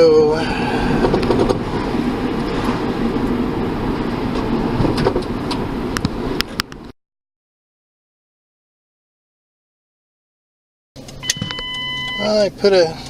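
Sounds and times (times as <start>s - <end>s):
car cabin road and engine rumble: 0.0s - 6.9s, 11.0s - 13.0s.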